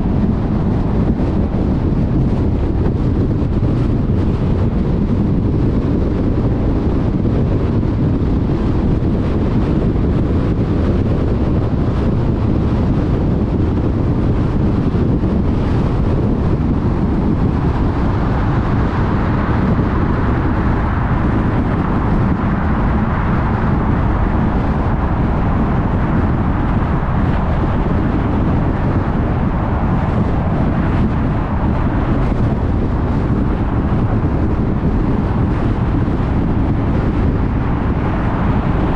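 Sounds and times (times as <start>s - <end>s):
low rumble: 0.0s - 38.9s
tyre and road noise: 0.0s - 38.9s
wind rush: 0.0s - 38.9s.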